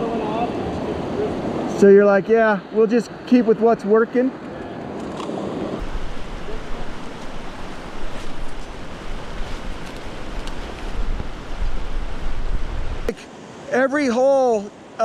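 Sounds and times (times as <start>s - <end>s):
wind buffeting microphone: 4.9s - 13.1s
creek water flowing: 5.2s - 15.0s.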